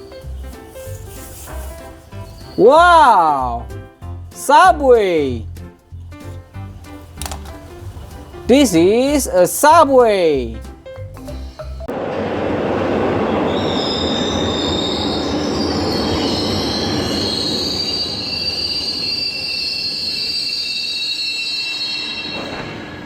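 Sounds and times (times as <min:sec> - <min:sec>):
subway train rumbling: 0:11.9 - 0:23.0
train wheels squealing: 0:13.5 - 0:23.0.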